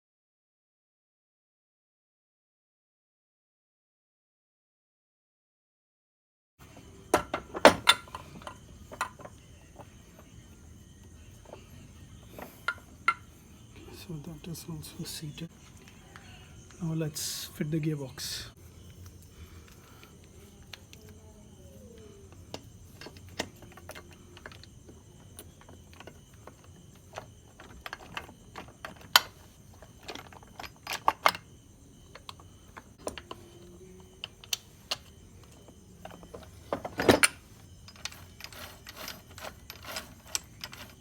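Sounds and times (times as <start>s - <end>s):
small metal clicks and knocks: 7.1s - 10.3s, 12.3s - 13.3s, 22.0s - 41.0s.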